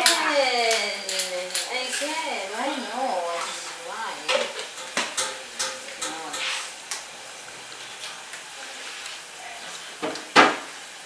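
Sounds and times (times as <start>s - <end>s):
utensil clicking against pan: 0.0s - 7.1s
food sizzling in frying pan: 0.0s - 11.0s.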